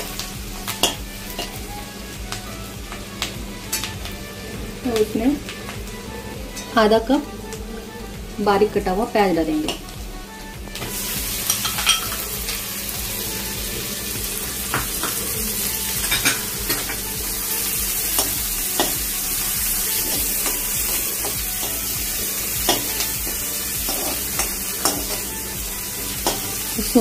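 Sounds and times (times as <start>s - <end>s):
onion sizzling in oil: 0.0s - 27.0s
steel spoon scraping pan: 23.8s - 25.3s.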